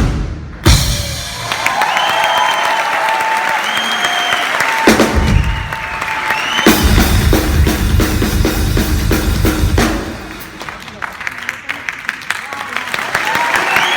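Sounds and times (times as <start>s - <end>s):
drum kit solo: 0.0s - 2.0s, 4.8s - 6.0s, 6.6s - 10.6s
crowd applause: 1.0s - 8.6s, 9.4s - 13.9s.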